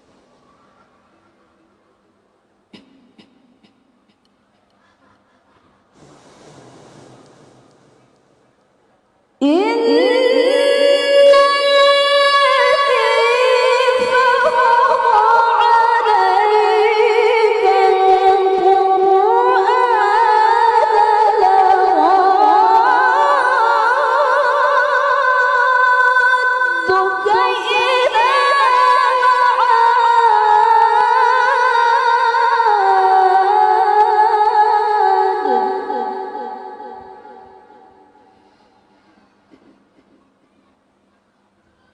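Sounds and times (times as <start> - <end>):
woman reciting melodically: 9.4 - 38.2.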